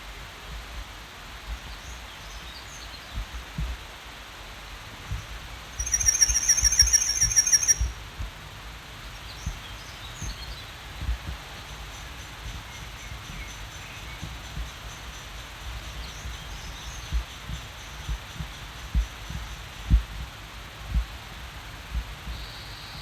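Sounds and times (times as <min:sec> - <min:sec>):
background hiss: 0:00.0 - 0:23.0
wind rumble on microphone: 0:00.0 - 0:23.0
faint bird chirps: 0:05.8 - 0:08.0
songbird trill: 0:05.8 - 0:08.0, 0:11.6 - 0:19.9.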